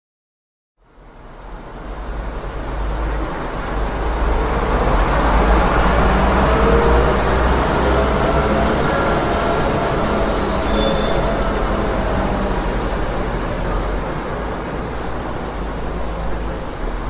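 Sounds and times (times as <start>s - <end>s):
traffic rumble: 0.8s - 17.0s
brief high tone: 10.6s - 11.6s.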